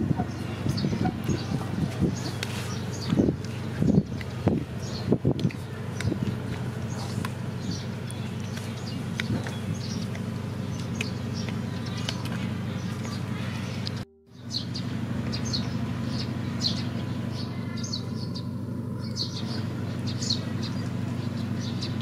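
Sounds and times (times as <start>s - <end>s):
small birds chirping: 0.0s - 22.0s
steady low hum: 0.0s - 22.0s.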